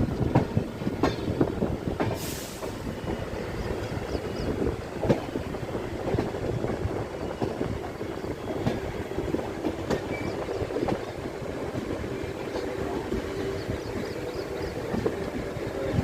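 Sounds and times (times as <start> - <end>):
train rumble: 0.0 - 16.0.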